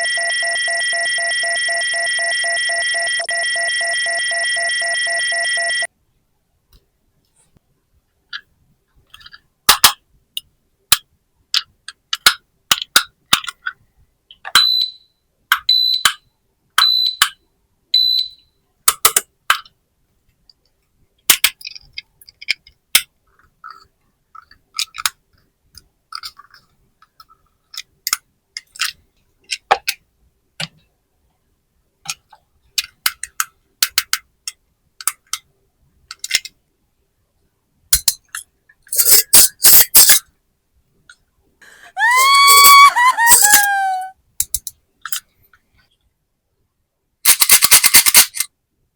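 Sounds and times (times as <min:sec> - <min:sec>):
plastic toy pieces clicking: 0:09.1 - 0:10.0, 0:10.9 - 0:13.8, 0:18.9 - 0:19.8, 0:21.3 - 0:30.0, 0:32.1 - 0:35.5, 0:36.1 - 0:36.6, 0:38.0 - 0:40.2, 0:42.0 - 0:45.3, 0:47.2 - 0:48.5.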